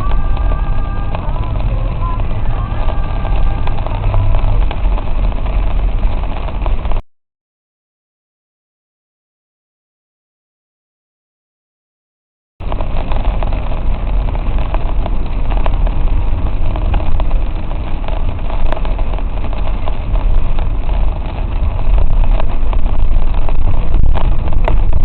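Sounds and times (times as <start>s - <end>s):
car engine and road noise: 0.0s - 7.0s, 12.6s - 25.0s.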